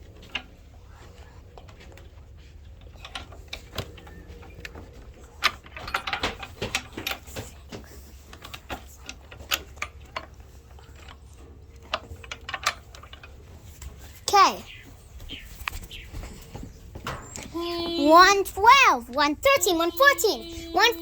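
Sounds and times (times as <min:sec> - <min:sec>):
hard objects clicking and knocking: 0:02.8 - 0:14.0.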